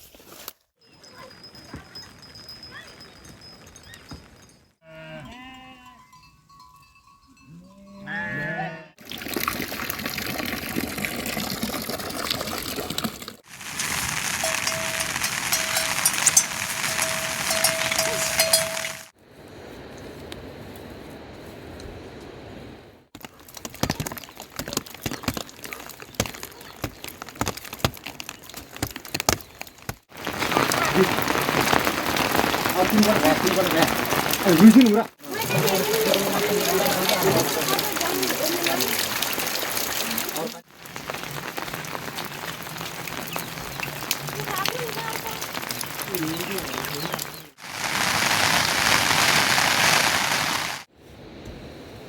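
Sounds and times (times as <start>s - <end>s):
livestock bleating: 4.8s - 6.1s, 7.5s - 9.0s
steady rushing hiss: 13.4s - 19.7s, 46.0s - 52.0s.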